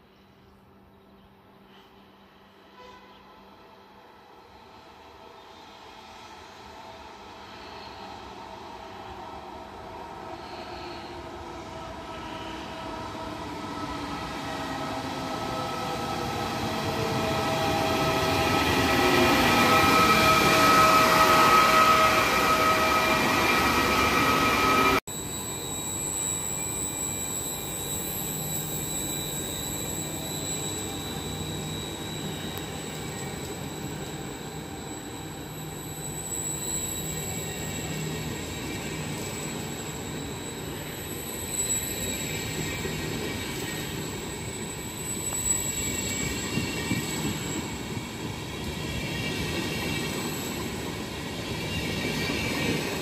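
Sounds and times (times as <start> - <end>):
train coaches rumbling past: 1.6 - 53.0
electric train motor whine: 10.4 - 53.0
wheels squealing: 14.1 - 53.0.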